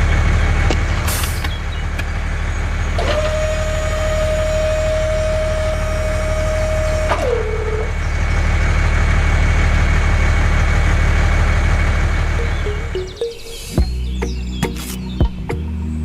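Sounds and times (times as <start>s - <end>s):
small motor humming: 2.4s - 9.0s
high whine: 11.2s - 16.0s.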